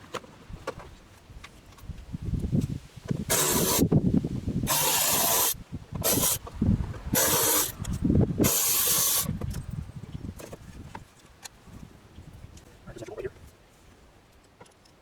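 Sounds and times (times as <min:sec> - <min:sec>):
hissing spray bursts: 0:03.3 - 0:03.9, 0:04.6 - 0:06.4, 0:07.2 - 0:07.8, 0:08.4 - 0:09.3.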